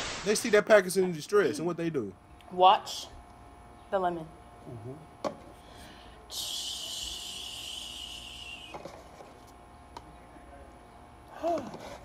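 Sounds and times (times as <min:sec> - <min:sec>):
high hiss: 0:00.0 - 0:00.7, 0:06.3 - 0:08.8.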